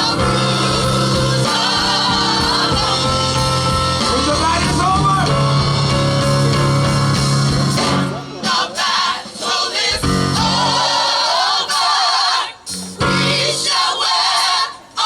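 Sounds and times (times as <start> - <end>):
steady bass line: 0.0 - 8.4
instrumental backing: 0.0 - 12.0
vocal group singing gospel: 0.0 - 15.0.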